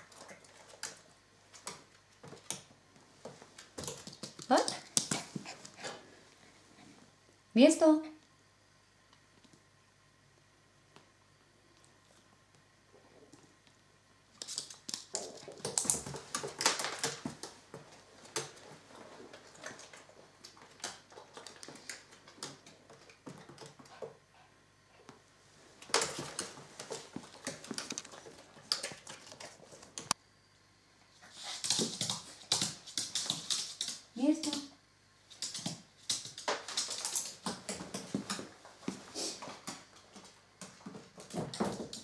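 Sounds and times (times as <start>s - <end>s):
puppy claws clicking on wooden floor: 14.3s - 18.6s, 31.5s - 34.7s.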